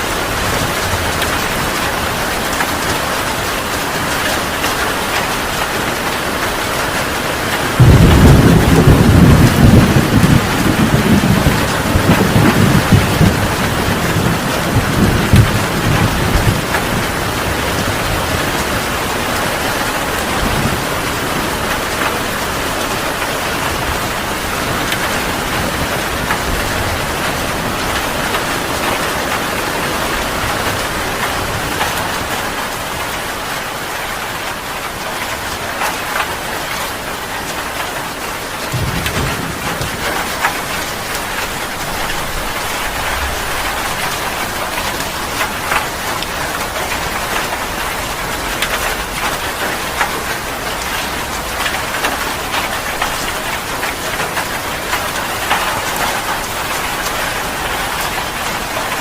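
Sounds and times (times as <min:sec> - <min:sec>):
heavy rain pouring: 0:00.0 - 0:59.0
low thunder rumble: 0:07.7 - 0:33.2, 0:38.6 - 0:50.4.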